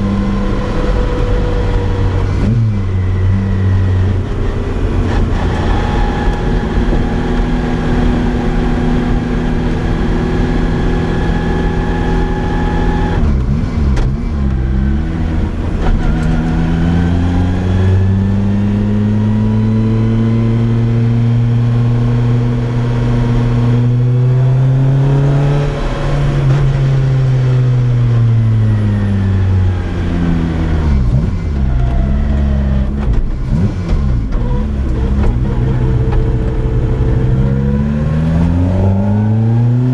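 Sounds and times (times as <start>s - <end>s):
sports car engine and exhaust: 0.0s - 39.9s.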